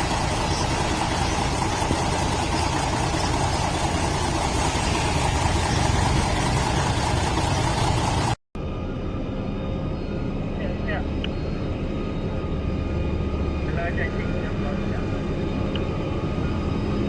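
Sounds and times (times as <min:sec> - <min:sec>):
construction machine engine running: 0:00.0 - 0:08.4.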